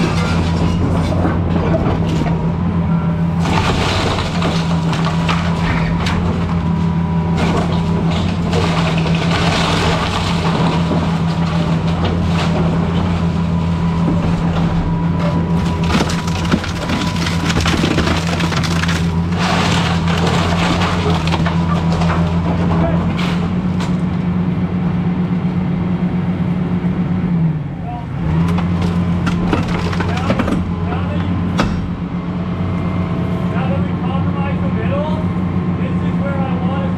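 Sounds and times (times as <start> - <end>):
wood debris crunching and splintering: 0.0 - 24.3, 28.1 - 32.8
excavator diesel engine running: 0.0 - 36.9.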